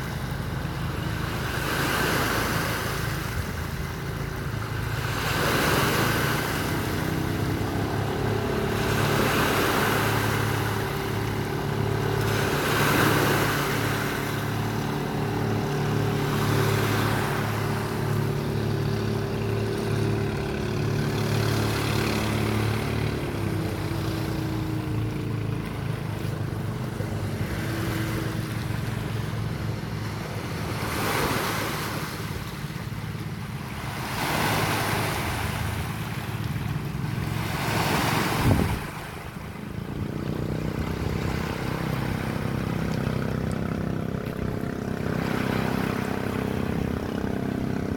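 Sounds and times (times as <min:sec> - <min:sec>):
sea waves washing in: 0:00.0 - 0:47.9.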